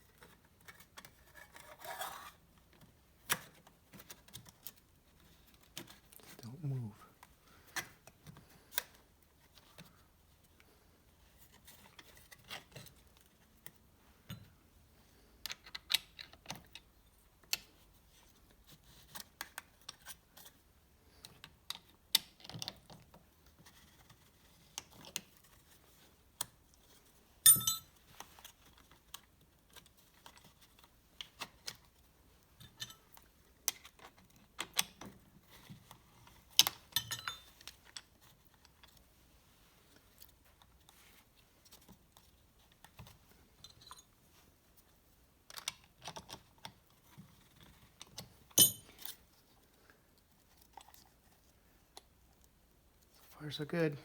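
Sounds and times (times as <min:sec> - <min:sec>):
metal parts and hand tools clicking: 0:27.4 - 0:28.5, 0:32.6 - 0:34.9, 0:36.5 - 0:39.0, 0:48.0 - 0:49.2
ringing metallic clink: 0:27.5 - 0:27.9, 0:37.0 - 0:37.5, 0:48.6 - 0:48.9.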